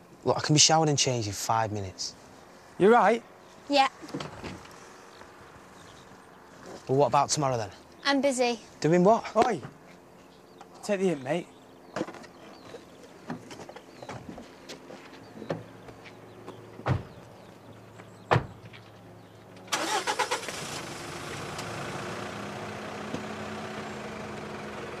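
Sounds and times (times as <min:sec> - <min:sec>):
car engine starting and running: 0:15.3 - 0:25.0.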